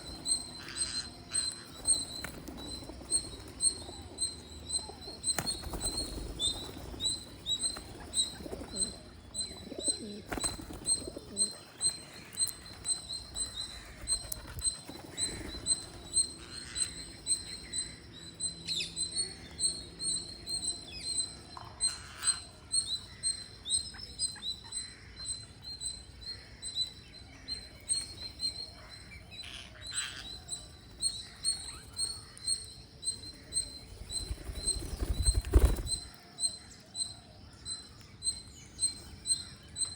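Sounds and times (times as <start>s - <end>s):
low bird cooing: 0.0s - 12.0s.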